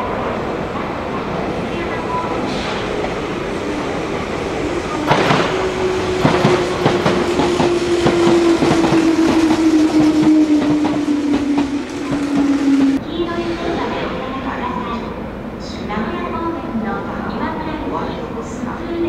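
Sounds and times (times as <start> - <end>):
electric train whine: 1.8 - 14.7.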